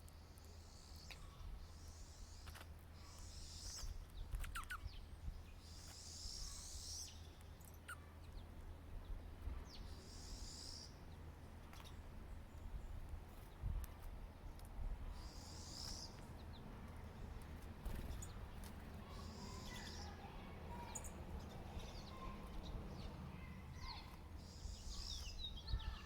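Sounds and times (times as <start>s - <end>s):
songbird buzzy trills: 0.0s - 13.7s, 15.1s - 26.0s
short bird chirps: 0.6s - 5.0s.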